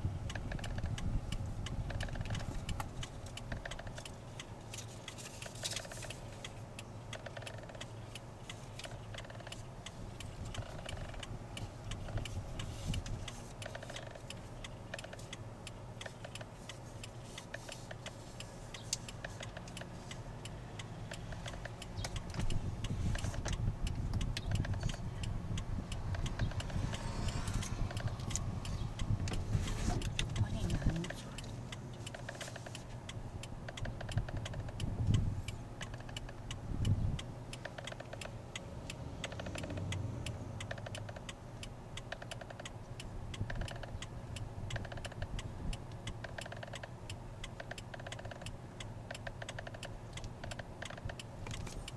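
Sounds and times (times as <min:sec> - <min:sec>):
low car rumble: 0:00.0 - 0:51.9
steering wheel ticking and clicking: 0:00.0 - 0:51.9.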